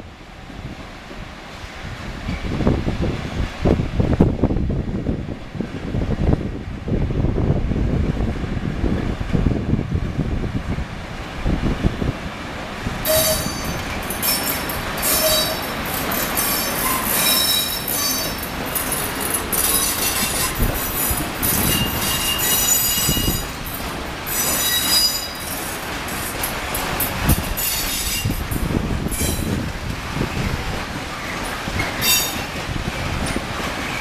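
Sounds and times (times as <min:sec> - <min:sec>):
freight train rumbling past: 0:00.0 - 0:34.0
train wheels squealing: 0:13.1 - 0:25.8, 0:27.6 - 0:28.4, 0:29.1 - 0:29.5, 0:31.8 - 0:32.6.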